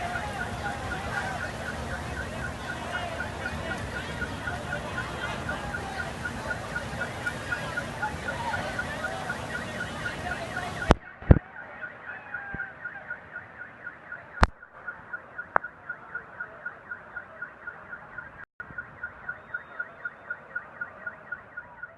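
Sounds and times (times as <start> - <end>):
heavy rain hiss: 0.0 - 10.8
car alarm chirping: 0.0 - 21.9.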